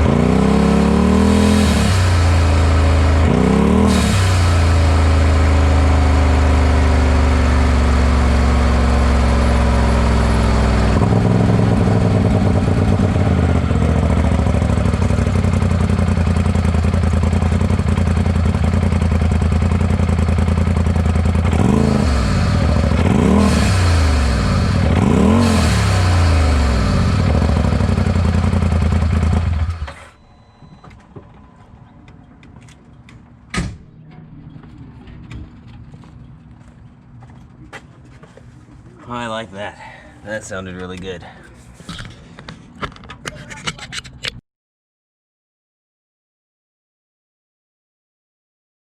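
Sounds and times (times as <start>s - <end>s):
engine idling and revving: 0.0s - 30.2s.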